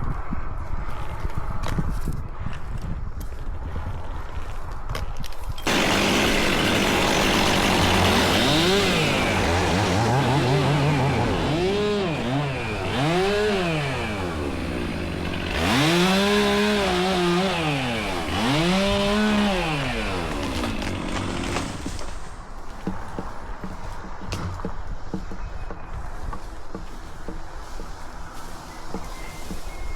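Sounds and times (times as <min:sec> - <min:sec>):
chainsaw revving: 0:05.7 - 0:22.2.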